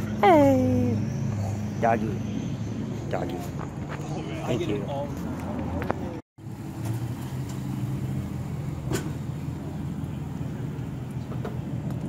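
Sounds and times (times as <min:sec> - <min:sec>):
car engine idling: 0:06.4 - 0:12.0.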